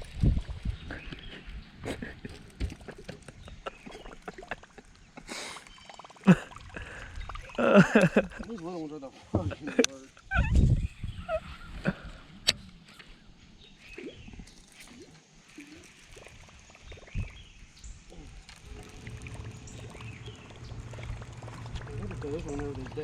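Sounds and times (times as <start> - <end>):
water sounds: 0.0 - 10.6, 11.2 - 23.0
low steady motor hum: 18.6 - 23.0.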